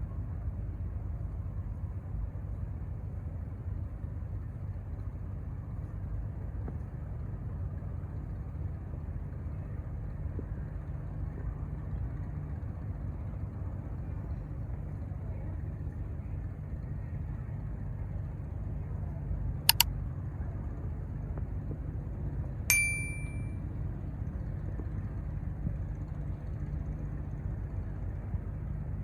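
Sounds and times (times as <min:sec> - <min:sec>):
sharp clicks: 0:22.7 - 0:23.4
metallic clang: 0:22.7 - 0:23.5.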